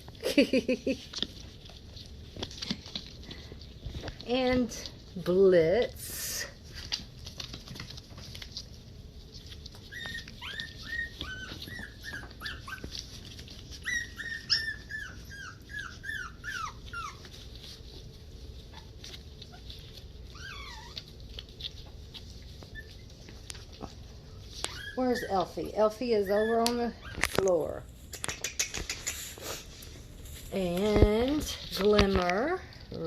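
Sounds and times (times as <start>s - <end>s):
faint scuffling clicks: 1.0s - 5.2s, 6.6s - 14.6s, 16.8s - 33.0s
puppies whimpering: 9.4s - 27.6s.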